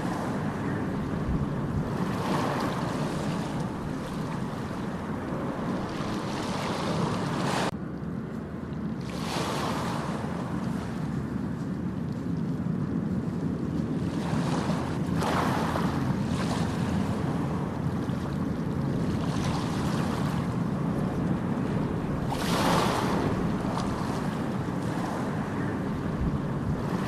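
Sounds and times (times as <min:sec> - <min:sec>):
ocean waves breaking: 0:00.0 - 0:07.8, 0:08.4 - 0:27.0
wind rumble on microphone: 0:00.0 - 0:27.0.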